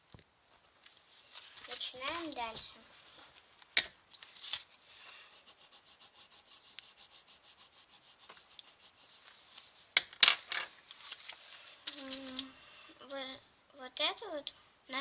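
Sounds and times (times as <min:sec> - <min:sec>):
drawing tool scribbling on paper: 0:04.6 - 0:10.0.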